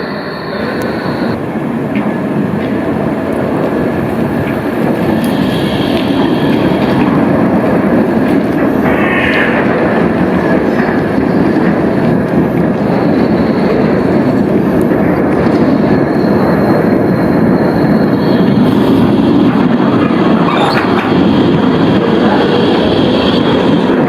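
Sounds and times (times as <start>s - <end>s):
faint high whine: 0.0s - 1.4s
tram wheels rumbling on rail: 0.0s - 24.0s.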